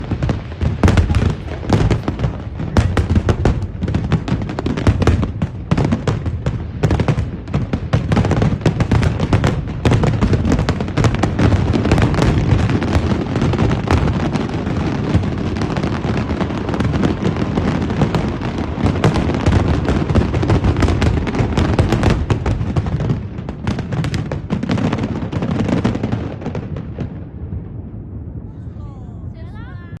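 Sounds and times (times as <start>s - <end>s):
fireworks booming: 0.0s - 30.0s
fireworks crackling: 0.0s - 30.0s.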